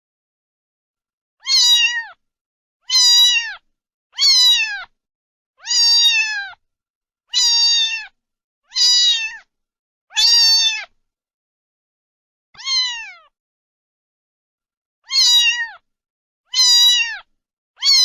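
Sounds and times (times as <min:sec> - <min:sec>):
cat meowing: 0:01.4 - 0:02.2, 0:02.8 - 0:04.9, 0:05.6 - 0:06.6, 0:07.3 - 0:09.5, 0:10.1 - 0:11.0, 0:12.6 - 0:13.4, 0:15.0 - 0:15.8, 0:16.5 - 0:18.0.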